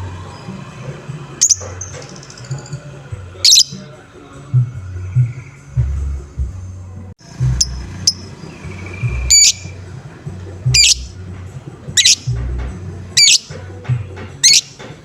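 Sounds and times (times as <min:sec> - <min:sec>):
bird chirps: 0:00.0 - 0:04.0, 0:04.6 - 0:06.4, 0:07.2 - 0:15.0
lovebird squawking: 0:01.4 - 0:02.8, 0:03.4 - 0:03.9, 0:07.4 - 0:11.2, 0:11.8 - 0:12.4, 0:13.2 - 0:13.6, 0:14.4 - 0:15.0
low steady music beat: 0:03.2 - 0:15.0
short held whistle: 0:10.7 - 0:11.1, 0:12.0 - 0:12.4, 0:13.2 - 0:13.5.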